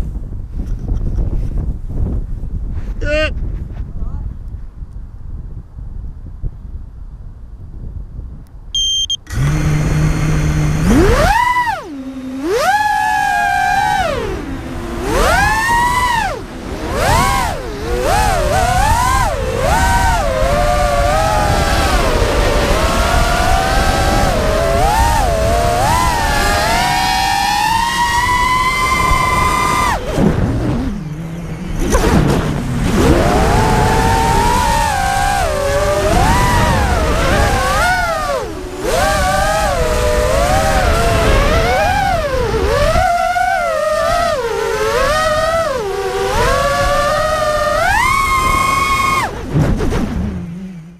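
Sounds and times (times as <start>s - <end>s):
short high beeps: 8.7s - 9.3s
drone motors whining: 8.8s - 50.9s.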